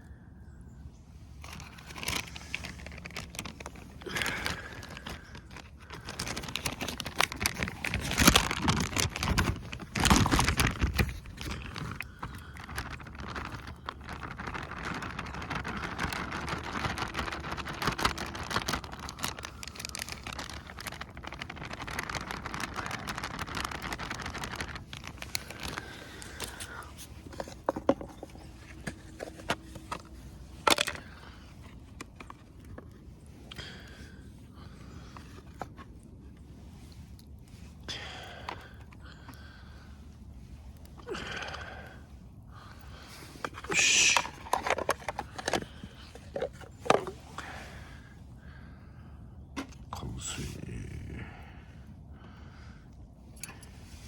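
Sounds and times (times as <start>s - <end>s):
crinkling and rustling: 1.2s - 50.6s, 53.3s - 54.0s.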